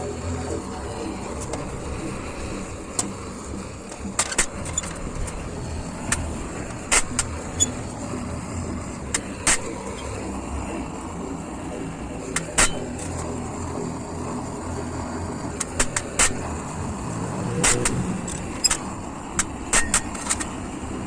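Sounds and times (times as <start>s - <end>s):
low rumbling noise: 0.0s - 21.0s
hammer striking steel: 12.4s - 13.0s, 19.7s - 20.2s.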